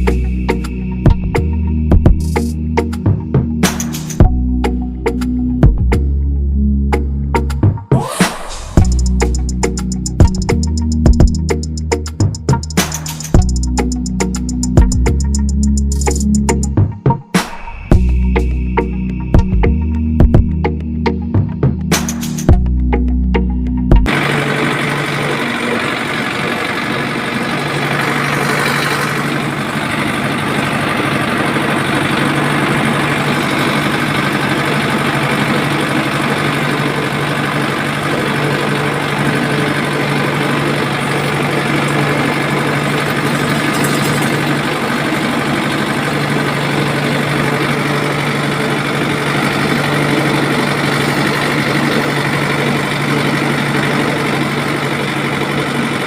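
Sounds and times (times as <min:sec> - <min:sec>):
motor humming steadily: 0:08.8 - 0:16.6, 0:24.0 - 0:56.0.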